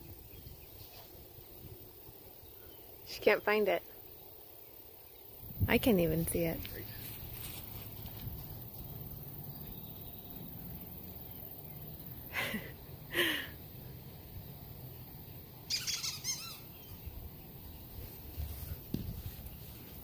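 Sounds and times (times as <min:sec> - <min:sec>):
birds calling: 0:00.0 - 0:20.0
steady low background noise: 0:00.0 - 0:20.0
rapid bird chirps: 0:15.7 - 0:17.1.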